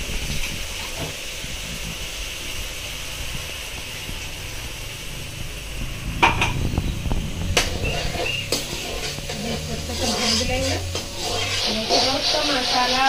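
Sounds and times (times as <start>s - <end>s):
paste sizzling in hot oil: 0.0s - 13.0s
spoon knocking against pan: 6.2s - 6.6s.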